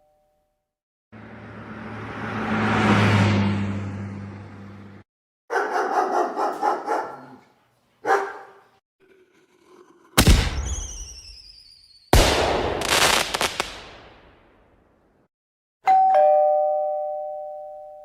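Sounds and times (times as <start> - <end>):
dog barking: 5.5 - 8.8
loud bangs: 10.2 - 11.4, 12.1 - 14.4
falling whistling tones: 10.5 - 12.1.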